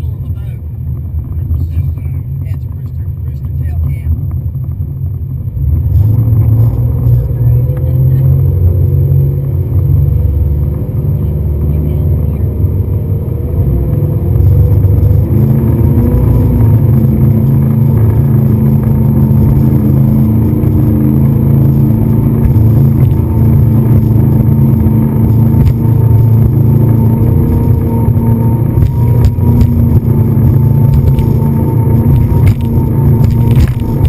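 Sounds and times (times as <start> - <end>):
engine running with low rumble: 0.0 - 34.0
sharp knocks: 32.1 - 34.0.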